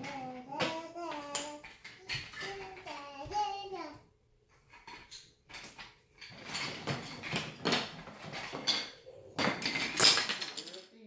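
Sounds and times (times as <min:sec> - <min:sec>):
wooden track pieces clacking: 0:00.0 - 0:03.4.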